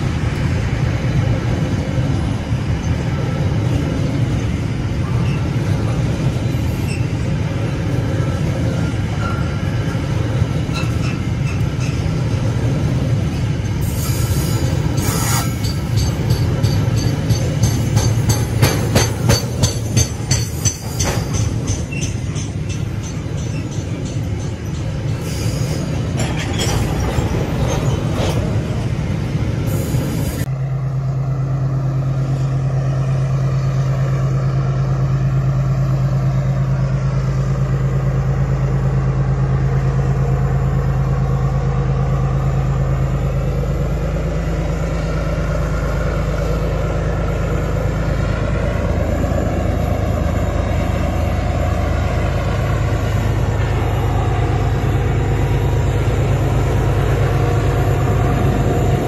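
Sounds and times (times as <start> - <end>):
wheels clacking over rail joints: 5.0 - 29.7.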